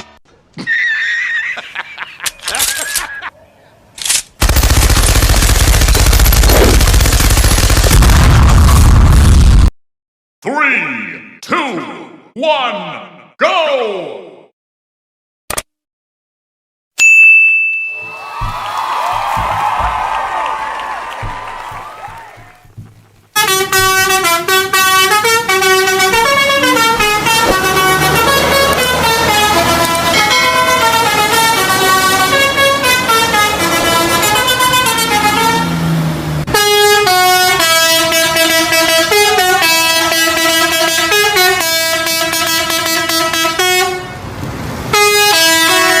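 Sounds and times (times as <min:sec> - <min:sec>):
multi-tone horn melody: 0:23.3 - 0:44.3, 0:44.9 - 0:46.0.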